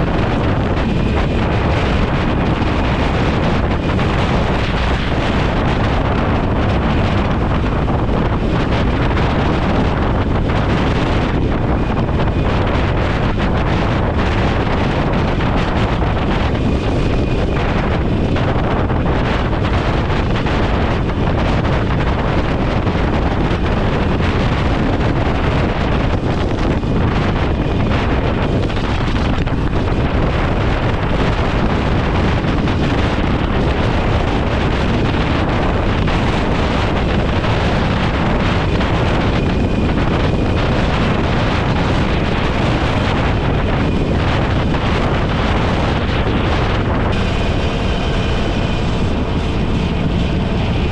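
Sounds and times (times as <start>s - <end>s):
wind rushing over microphone: 0.0s - 50.9s.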